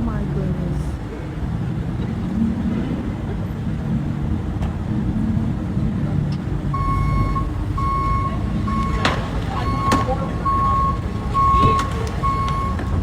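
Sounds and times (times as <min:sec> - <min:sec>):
vehicle engine rumbling: 0:00.0 - 0:13.0
reversing beeper: 0:06.7 - 0:13.0.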